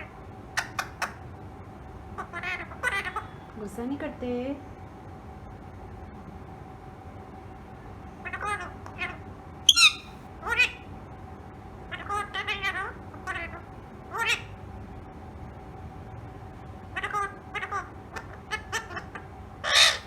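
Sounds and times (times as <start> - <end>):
parrot squawking: 2.2 - 3.4, 8.2 - 10.9, 11.9 - 14.5, 17.0 - 20.0.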